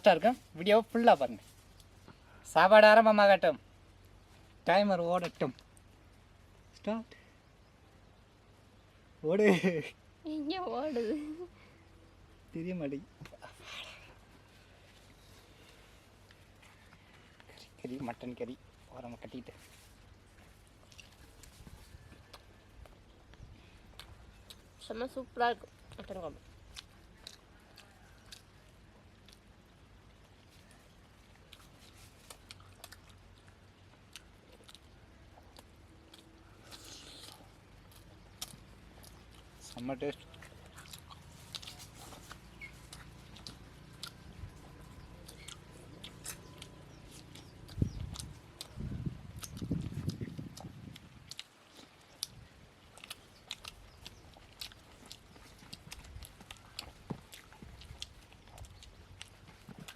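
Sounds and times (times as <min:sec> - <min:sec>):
soft rustle: 0:00.0 - 0:02.4, 0:13.4 - 0:23.0, 0:30.1 - 0:32.8, 0:40.4 - 0:44.9
people chewing food: 0:00.0 - 0:09.1, 0:11.1 - 0:59.9.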